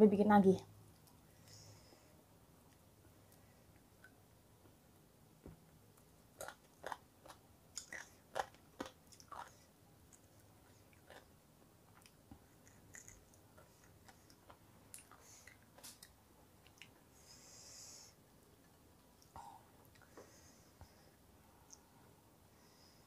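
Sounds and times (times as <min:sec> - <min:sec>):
person chewing: 0:05.9 - 0:17.0.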